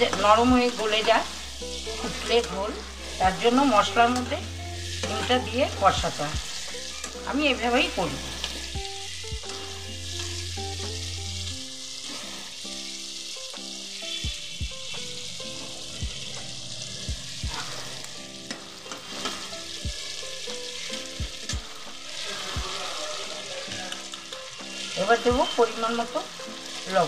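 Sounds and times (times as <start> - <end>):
food sizzling in oil: 0.0 - 27.0
soft background music: 0.0 - 27.0.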